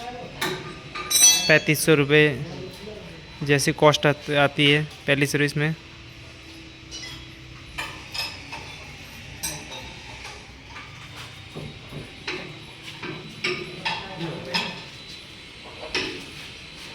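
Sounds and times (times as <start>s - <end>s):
metal tools clinking: 0.9s - 2.0s, 6.9s - 10.0s.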